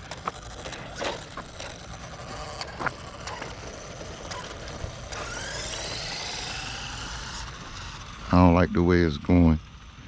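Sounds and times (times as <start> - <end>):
rc truck motor whining: 0.0 - 10.0.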